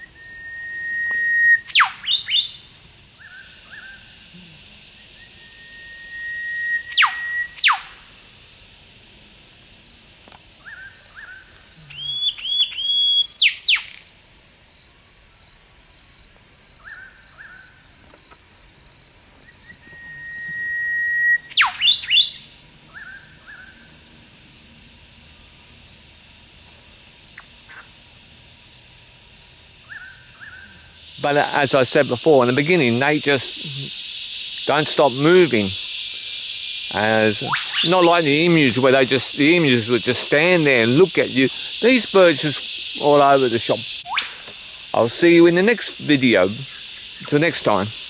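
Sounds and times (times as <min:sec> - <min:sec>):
short whistled bird notes: 0:00.0 - 0:03.9, 0:05.2 - 0:07.9, 0:10.6 - 0:14.1, 0:19.4 - 0:23.7
steady high hiss: 0:00.0 - 0:48.0
bird whip-crack calls: 0:00.8 - 0:04.0, 0:05.5 - 0:08.1, 0:10.3 - 0:14.2, 0:19.7 - 0:23.8, 0:27.4 - 0:28.0, 0:36.9 - 0:40.8, 0:41.8 - 0:44.7.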